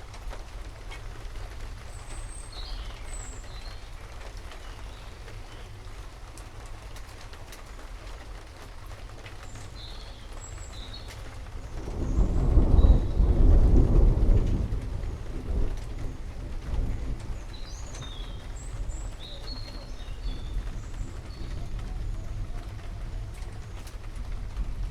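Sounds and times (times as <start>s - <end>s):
heavy rain: 0.0s - 24.9s
thunder rumbling: 11.4s - 24.9s.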